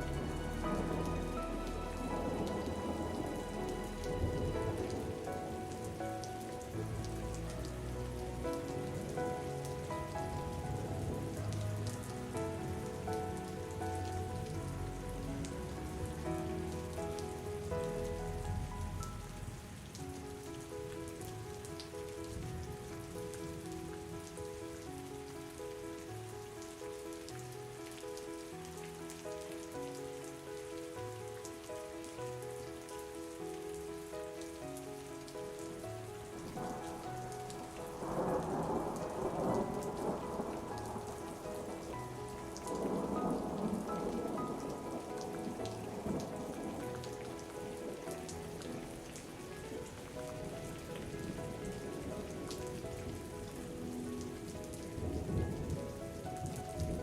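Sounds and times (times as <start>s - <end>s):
thunder rumbling: 0.0s - 20.4s, 36.2s - 57.0s
soft melody: 0.0s - 57.0s
steady rain: 0.0s - 57.0s.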